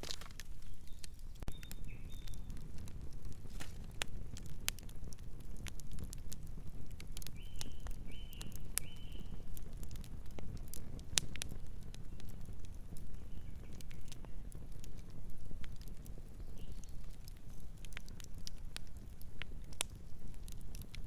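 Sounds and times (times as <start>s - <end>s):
wood fire crackling and popping: 0.0s - 21.0s
bird chirping: 0.6s - 2.5s, 7.4s - 9.4s.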